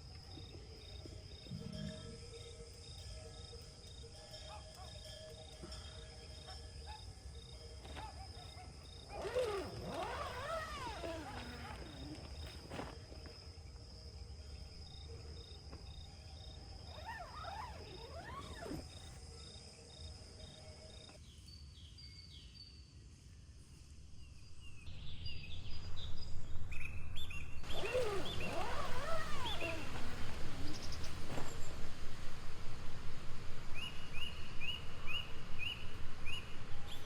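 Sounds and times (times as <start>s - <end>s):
high insect trill: 0.0s - 26.1s.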